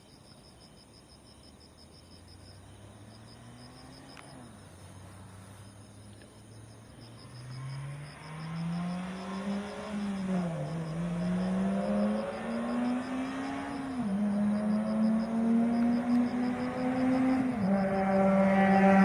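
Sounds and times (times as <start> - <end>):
crickets chirping: 0.0 - 19.0
car engine accelerating hard: 7.4 - 19.0.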